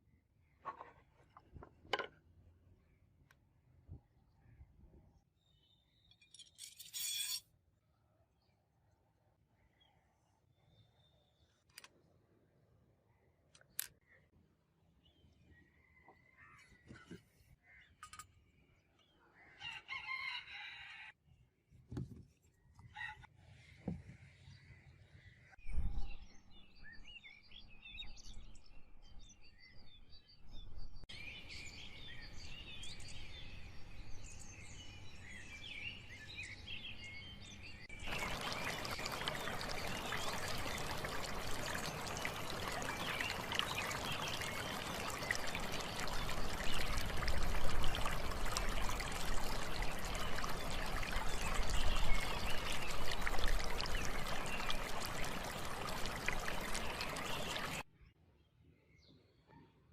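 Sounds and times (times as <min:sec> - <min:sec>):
birds chirping: 0:35.8 - 0:57.8
running water rushing: 0:37.9 - 0:57.8.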